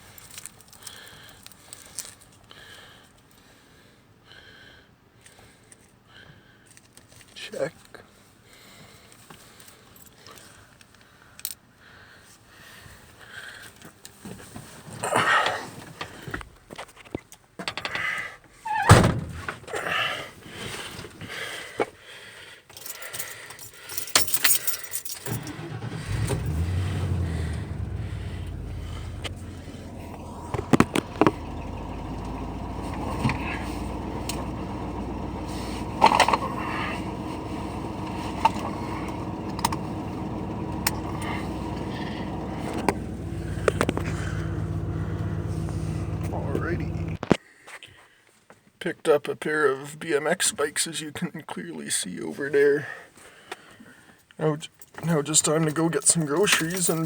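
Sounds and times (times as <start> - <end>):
keys jangling: 22.7 - 25.5, 56.4 - 57.0
vehicle engine starting and running: 25.3 - 47.3
handling clatter: 27.5 - 47.3
sharp clicks: 37.1 - 47.2.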